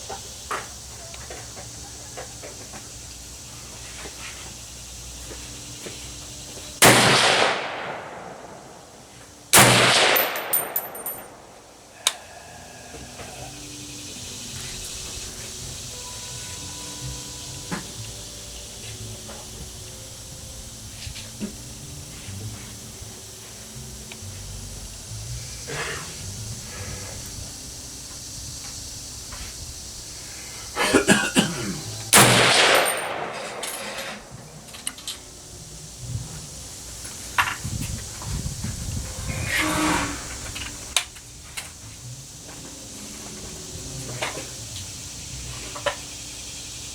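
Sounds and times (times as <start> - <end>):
rifle shots echoing: 6.8 - 11.5, 32.2 - 34.3
light metallic clinks: 9.9 - 12.2, 32.2 - 35.3.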